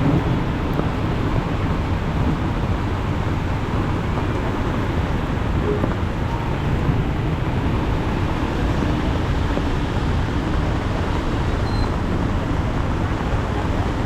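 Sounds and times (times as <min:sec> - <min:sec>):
heavy rain rushing: 0:00.0 - 0:14.0
road traffic: 0:00.0 - 0:14.0.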